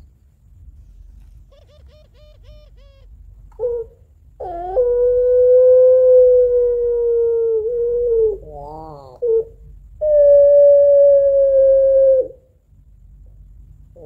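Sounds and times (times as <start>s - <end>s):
dove cooing: 1.4s - 12.4s
dove long drawn-out call: 1.5s - 12.5s.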